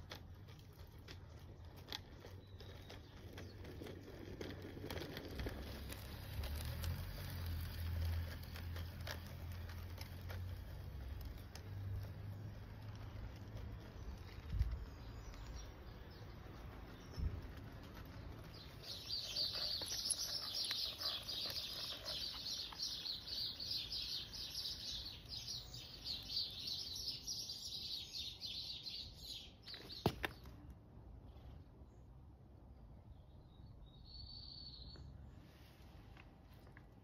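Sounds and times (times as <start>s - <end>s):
songbird chattering song: 18.5s - 30.5s, 33.1s - 35.2s.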